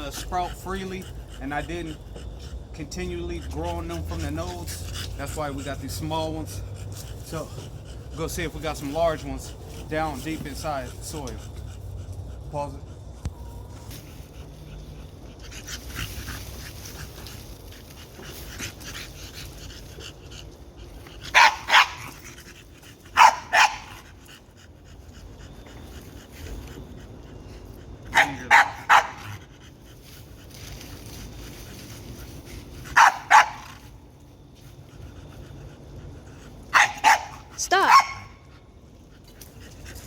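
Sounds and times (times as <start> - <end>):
dog barking: 21.3 - 22.1, 23.1 - 24.0, 28.1 - 29.4, 32.9 - 33.8, 36.7 - 38.4.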